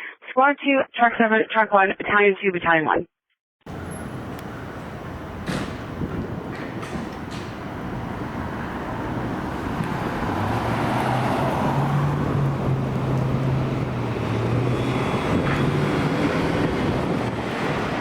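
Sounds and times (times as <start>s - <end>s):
tyre and traffic noise: 3.7s - 18.0s
fire truck diesel engine running: 11.9s - 18.0s.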